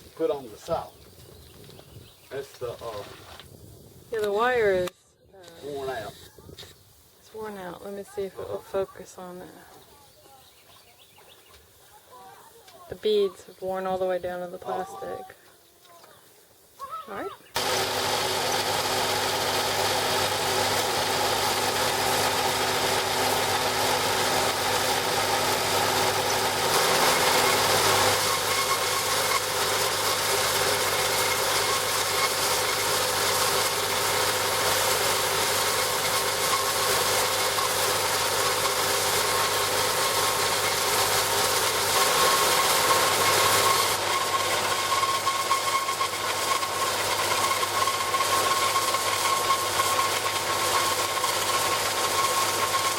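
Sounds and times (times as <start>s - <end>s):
wire rock saw humming with rattle: 17.6s - 52.9s.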